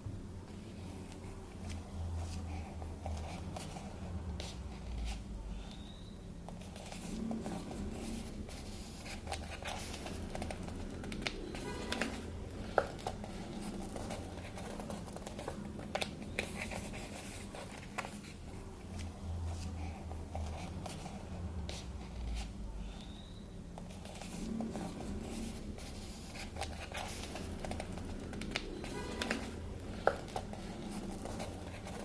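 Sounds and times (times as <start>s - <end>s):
paper rustling: 6.6s - 22.6s, 23.8s - 32.0s.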